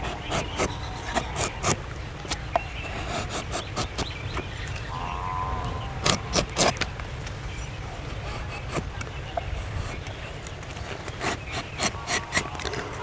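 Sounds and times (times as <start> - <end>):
low rumble: 4.8 - 8.6
short wavering call: 4.9 - 8.0.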